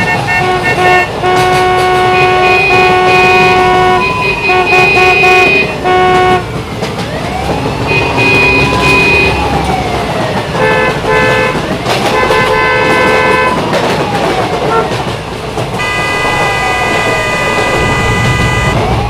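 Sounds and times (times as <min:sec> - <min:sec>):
train horn tooting: 0:00.0 - 0:06.5, 0:07.9 - 0:09.6, 0:10.6 - 0:13.6, 0:14.6 - 0:15.0, 0:15.8 - 0:19.0
siren wailing: 0:02.1 - 0:15.1, 0:15.8 - 0:19.0.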